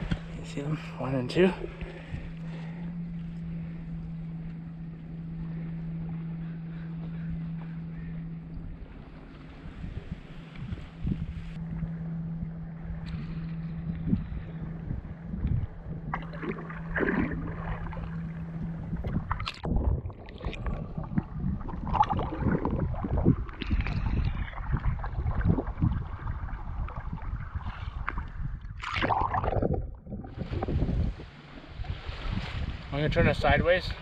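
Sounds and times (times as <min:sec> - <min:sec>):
knocks and sloshing around hull: 0:00.0 - 0:34.0
steady low hum: 0:00.0 - 0:34.0
paddles splashing in water: 0:16.1 - 0:28.1, 0:28.8 - 0:33.0.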